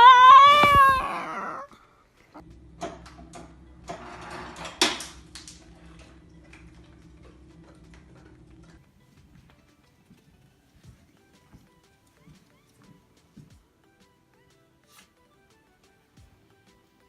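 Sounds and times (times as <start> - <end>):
dog howling whine: 0.0 - 1.8.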